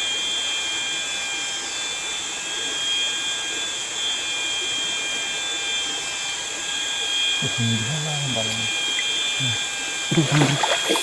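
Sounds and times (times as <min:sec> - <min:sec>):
insects droning: 0:06.0 - 0:11.0
river water rushing: 0:10.1 - 0:11.0.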